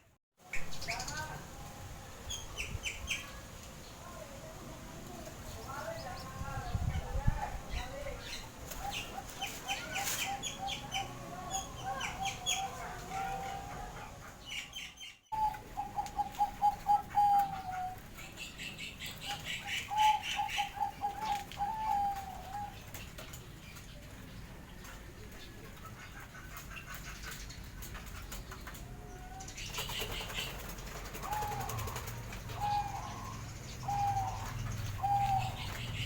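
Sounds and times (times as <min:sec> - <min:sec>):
doves cooing in staccato notes: 0:08.6 - 0:14.4, 0:15.4 - 0:23.3, 0:24.7 - 0:36.0.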